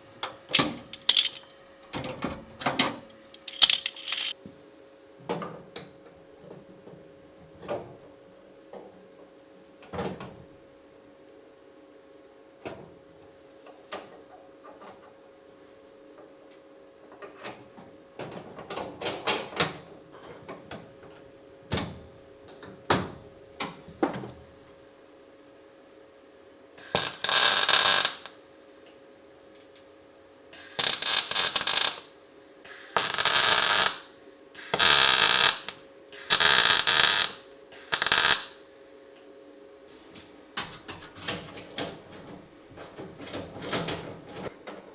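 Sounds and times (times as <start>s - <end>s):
welding crackling hiss: 26.8s - 28.4s, 30.6s - 32.1s, 32.7s - 38.6s.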